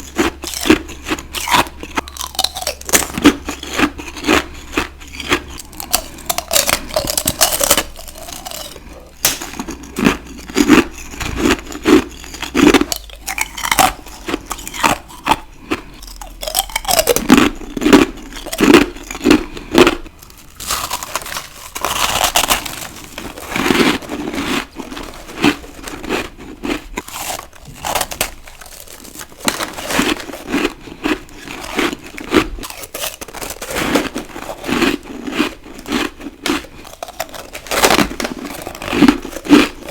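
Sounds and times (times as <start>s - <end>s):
chewing ice crunches: 0.0s - 39.9s.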